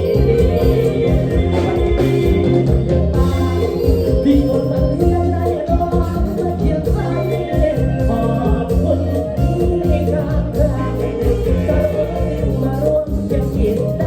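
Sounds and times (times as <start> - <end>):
electric bass line: 0.0 - 14.0
person singing: 0.0 - 14.0
steady beat: 0.0 - 14.0.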